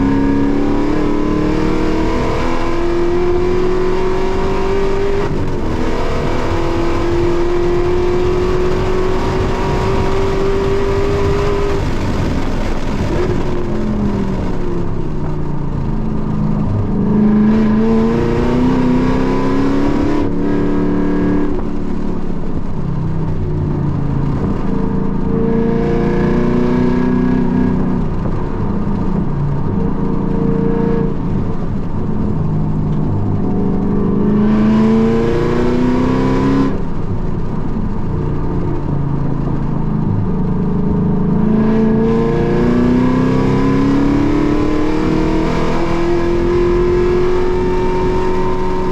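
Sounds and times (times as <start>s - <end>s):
car engine accelerating: 0.0s - 48.9s
road and wind noise: 0.0s - 48.9s.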